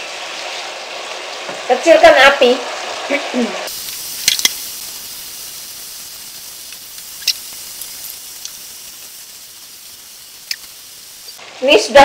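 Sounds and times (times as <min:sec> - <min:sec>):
stir-fry sizzling in a frying pan: 0:00.0 - 0:12.0.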